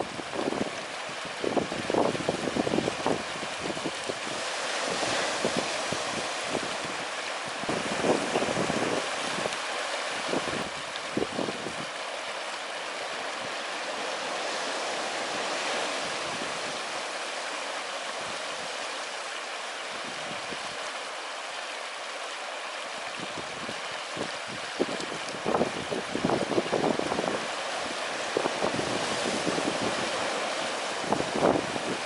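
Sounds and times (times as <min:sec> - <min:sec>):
wind buffeting microphone: 0:00.0 - 0:09.6, 0:10.2 - 0:12.0, 0:23.1 - 0:32.0
ocean surf on a beach: 0:00.0 - 0:32.0.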